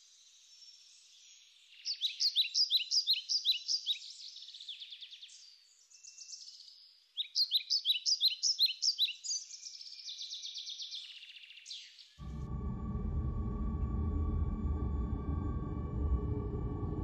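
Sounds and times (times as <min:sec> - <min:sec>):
birds chirping and singing: 0:00.0 - 0:12.3
low steady music: 0:12.2 - 0:17.0.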